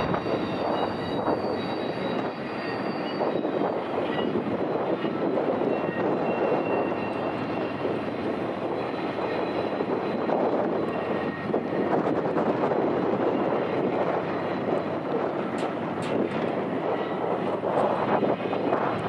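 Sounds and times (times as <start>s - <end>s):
rumble of wheels on track: 0.0s - 19.0s.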